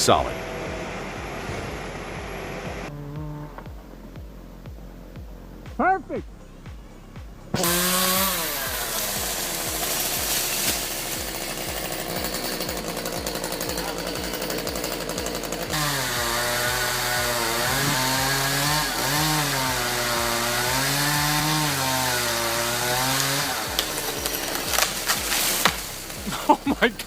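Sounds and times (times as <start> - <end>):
machine with low pulsing: 0.0 - 27.0
chainsaw engine revving: 7.5 - 27.0.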